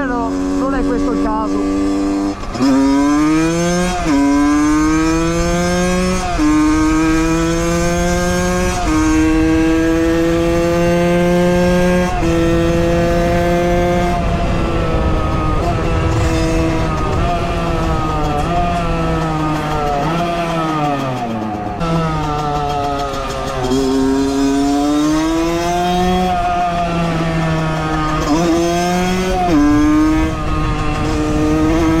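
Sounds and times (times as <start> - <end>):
two-stroke engine accelerating: 0.0 - 32.0.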